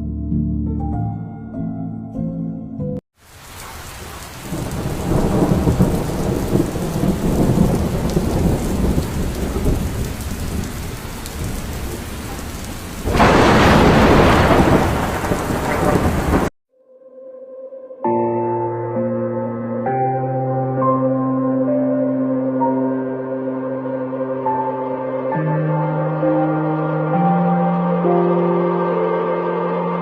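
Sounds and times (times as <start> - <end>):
steady rain: 3.2 - 16.5
rolling thunder: 3.5 - 16.5
loud thunderclap: 4.4 - 16.5.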